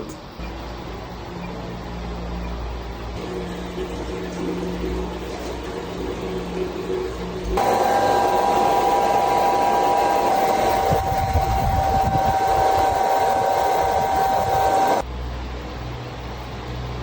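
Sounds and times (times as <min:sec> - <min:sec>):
hair dryer running: 0:07.5 - 0:15.0.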